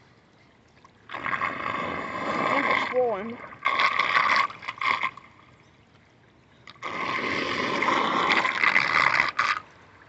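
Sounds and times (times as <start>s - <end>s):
water rushing down a drain: 6.8s - 9.7s.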